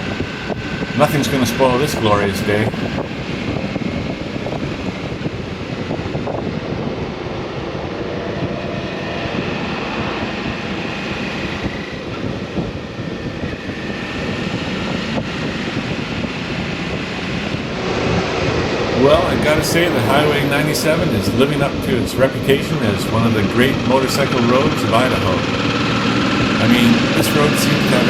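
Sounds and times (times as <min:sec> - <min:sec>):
motorcycle engine running: 0:00.0 - 0:03.2, 0:14.0 - 0:28.0
wind rushing on microphone: 0:00.0 - 0:28.0.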